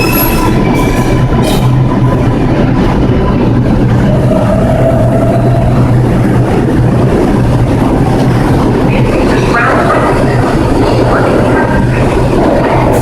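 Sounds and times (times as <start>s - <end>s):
subway train rumbling: 0.0s - 13.0s.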